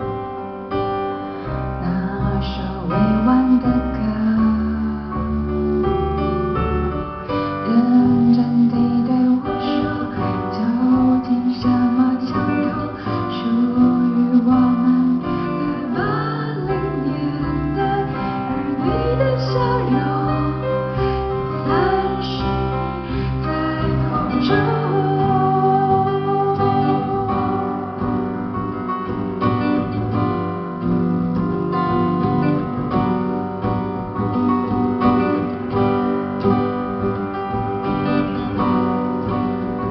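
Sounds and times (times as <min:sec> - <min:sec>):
piano: 0:00.0 - 0:39.9
strummed acoustic guitar: 0:00.0 - 0:39.9
woman singing: 0:01.7 - 0:29.2.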